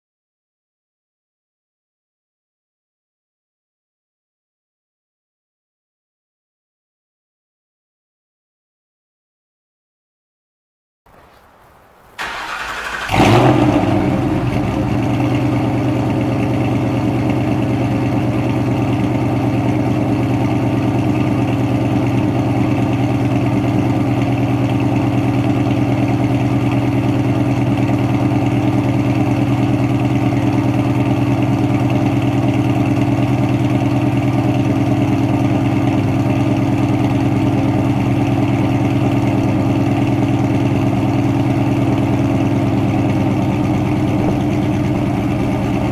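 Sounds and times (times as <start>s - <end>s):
car engine starting and idling: 11.1s - 45.9s.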